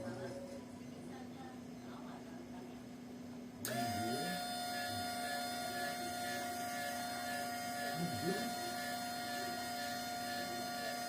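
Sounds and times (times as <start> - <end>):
printer machine hum: 3.7 - 11.0.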